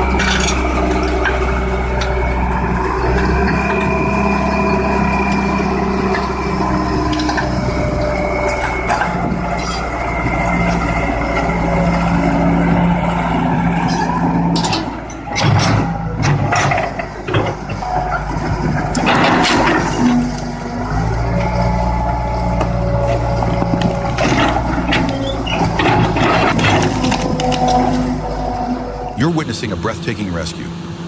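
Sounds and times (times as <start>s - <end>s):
excavator engine running: 0.0s - 31.0s
metal clanks and knocks: 13.8s - 20.5s, 23.4s - 28.1s.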